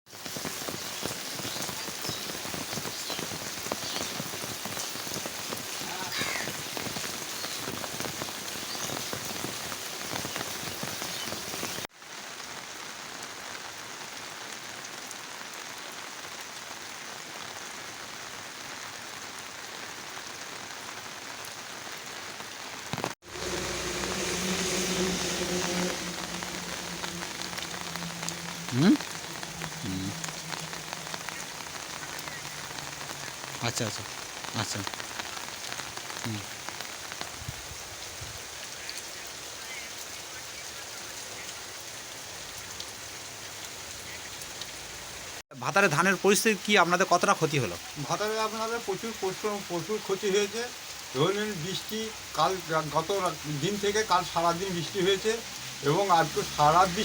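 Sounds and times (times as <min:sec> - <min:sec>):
steady rain falling: 0:00.1 - 0:57.0
brief rising tone: 0:23.3 - 0:31.2.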